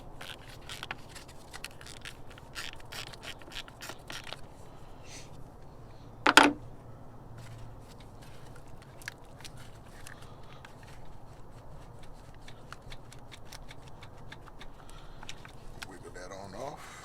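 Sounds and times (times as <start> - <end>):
ratchet clicking and scraping: 0.2 - 4.4.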